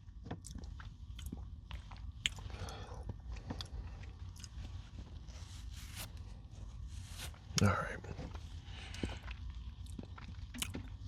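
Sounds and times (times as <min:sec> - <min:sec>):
crunchy chewing: 0:08.2 - 0:11.0.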